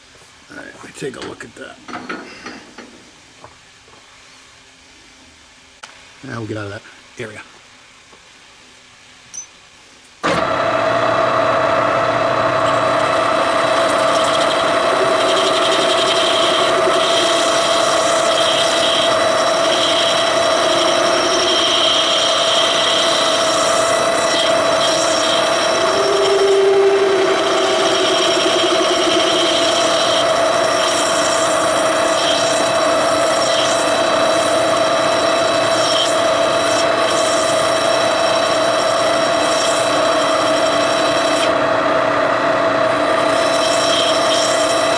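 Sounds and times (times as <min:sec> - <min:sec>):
machine tool whine: 0:10.2 - 0:44.9
rasping steel cutting: 0:12.4 - 0:41.6, 0:42.8 - 0:44.9.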